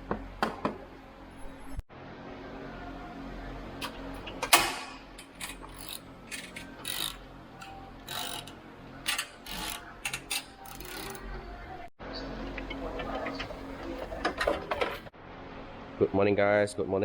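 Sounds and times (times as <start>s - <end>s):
metal tools clicking and clanking: 3.8s - 11.4s.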